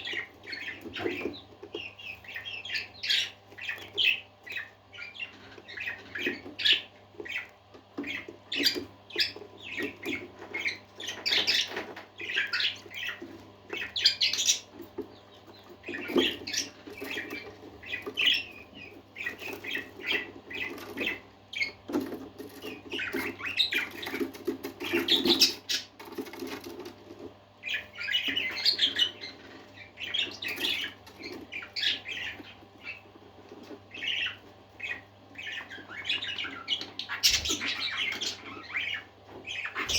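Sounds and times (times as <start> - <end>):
parakeets chirping and chattering: 0.0 - 39.9.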